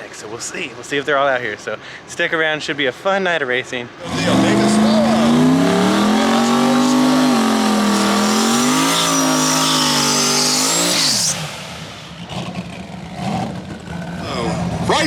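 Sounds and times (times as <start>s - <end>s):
race car engine revving: 3.9s - 15.0s.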